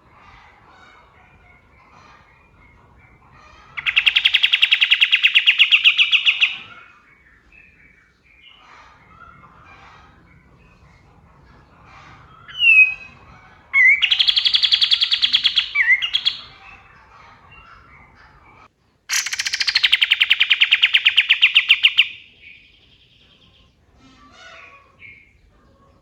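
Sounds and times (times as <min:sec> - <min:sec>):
songbird whistle and trills: 0:03.8 - 0:06.9, 0:12.5 - 0:16.8, 0:19.1 - 0:23.6.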